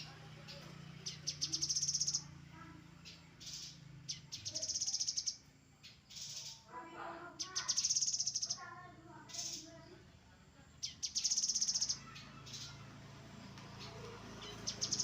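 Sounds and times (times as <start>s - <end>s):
bird chattering notes: 0.0s - 2.3s, 3.0s - 6.7s, 7.4s - 8.6s, 10.8s - 12.7s
bird high trills: 11.0s - 12.8s.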